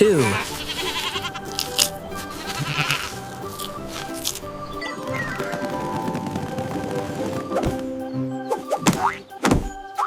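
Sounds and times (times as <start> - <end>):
goat bleating: 0.0 - 1.6, 2.3 - 3.2
background music: 0.0 - 10.0.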